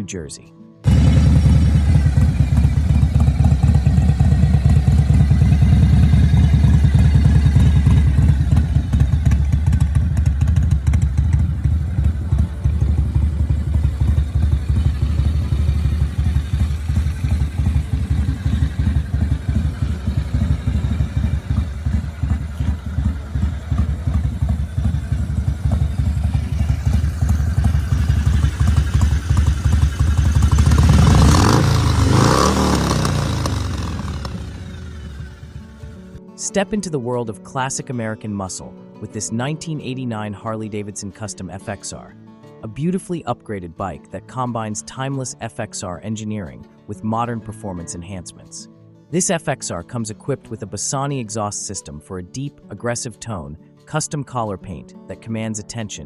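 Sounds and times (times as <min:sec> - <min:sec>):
motorcycle engine running steadily: 0:00.8 - 0:36.2.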